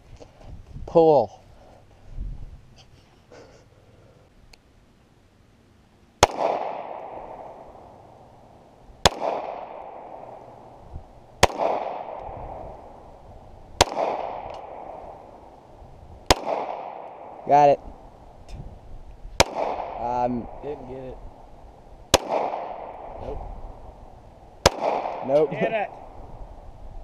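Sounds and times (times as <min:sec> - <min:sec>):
gunshots with echo: 0:06.2 - 0:07.6, 0:09.0 - 0:10.4, 0:11.4 - 0:12.8, 0:13.8 - 0:15.2, 0:16.3 - 0:17.6, 0:19.4 - 0:20.8, 0:22.1 - 0:23.2, 0:24.6 - 0:25.6.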